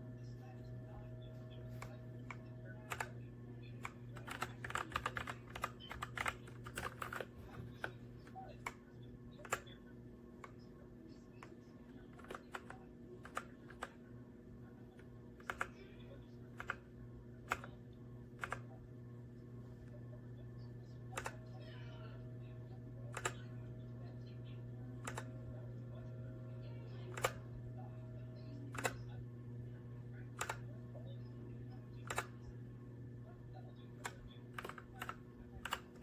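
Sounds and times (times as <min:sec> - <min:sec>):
faint steady hum: 0:00.0 - 0:36.0
mechanical keyboard typing: 0:01.7 - 0:08.0, 0:09.4 - 0:09.8, 0:11.4 - 0:14.0, 0:14.9 - 0:15.8, 0:16.5 - 0:17.8, 0:18.4 - 0:18.8, 0:21.1 - 0:21.4, 0:23.0 - 0:23.6, 0:25.0 - 0:25.6, 0:27.0 - 0:27.6, 0:28.6 - 0:29.2, 0:30.3 - 0:30.8, 0:32.0 - 0:32.4, 0:33.9 - 0:36.0.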